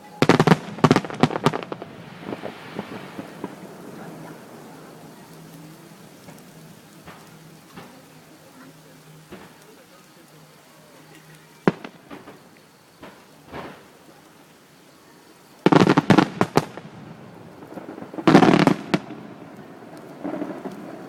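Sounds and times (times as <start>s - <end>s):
firework bang: 0.0s - 5.3s, 6.2s - 8.0s, 11.7s - 13.9s, 15.7s - 19.4s
rapid crackling firework bangs: 0.0s - 8.6s, 9.3s - 9.8s, 11.6s - 14.4s, 15.6s - 21.0s
small firework pops: 0.2s - 10.4s, 11.1s - 14.4s, 15.4s - 21.0s.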